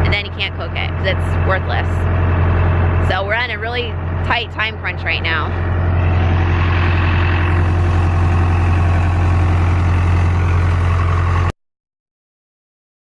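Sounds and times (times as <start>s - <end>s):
vehicle engine droning: 0.0s - 11.6s.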